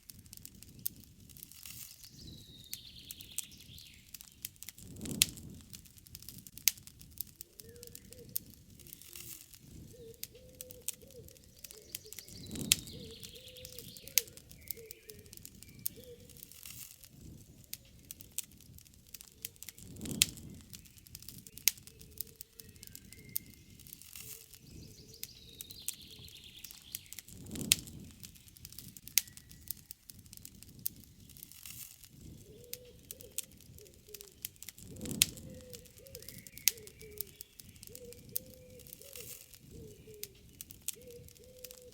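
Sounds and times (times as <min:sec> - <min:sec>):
campfire crackling and popping: 0:00.0 - 0:41.9
birds chirping: 0:01.9 - 0:04.6, 0:07.4 - 0:16.6, 0:17.2 - 0:18.4, 0:19.2 - 0:29.9, 0:32.1 - 0:41.9
dove cooing: 0:07.4 - 0:15.3, 0:15.9 - 0:16.4, 0:32.3 - 0:34.4, 0:35.0 - 0:41.9.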